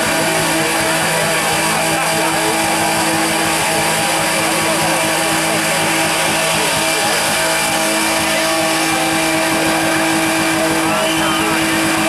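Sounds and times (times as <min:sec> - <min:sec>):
drift car engines and tyres: 0:00.0 - 0:12.0.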